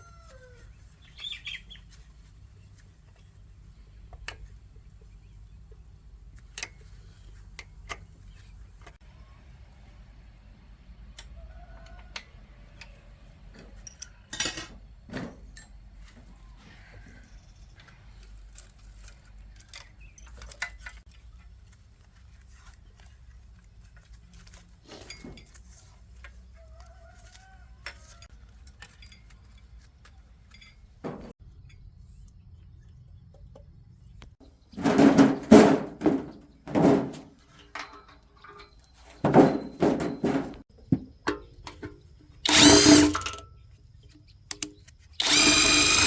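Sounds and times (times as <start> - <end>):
power tool running in bursts: 42.5 - 43.4, 45.2 - 46.0
small metal parts clinking: 42.5 - 43.5, 45.2 - 46.0.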